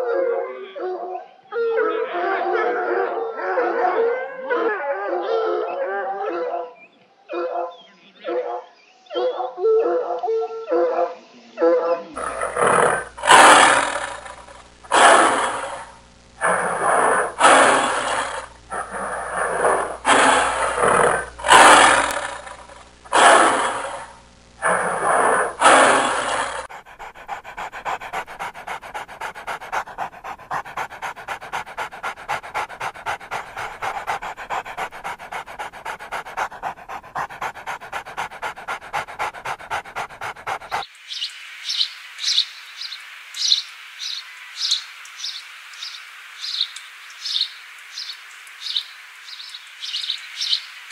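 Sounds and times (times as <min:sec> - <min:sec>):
dog barking: 0:06.3 - 0:40.8
fast rhythmic pulses: 0:12.2 - 0:40.9.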